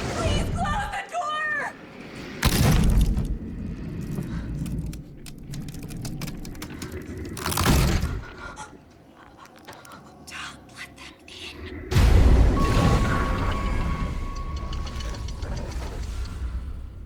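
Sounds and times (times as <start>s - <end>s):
clicks and crackles: 2.4s - 10.3s
loud cinematic hit: 11.9s - 14.9s.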